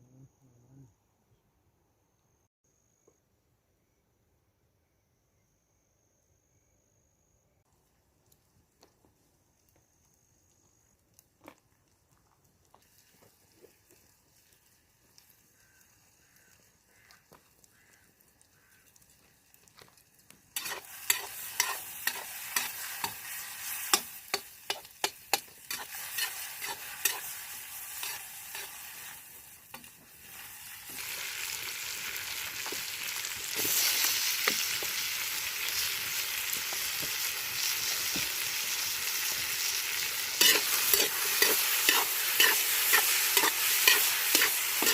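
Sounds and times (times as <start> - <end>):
hot fat sizzling: 7.9 - 44.9
utensil scraping a pot: 20.6 - 23.2, 23.8 - 27.4, 28.0 - 29.1, 40.4 - 44.9.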